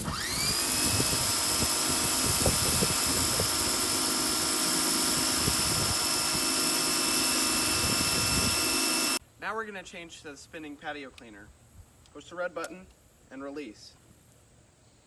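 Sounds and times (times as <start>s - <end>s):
pressure washer motor whine: 0.0s - 9.2s.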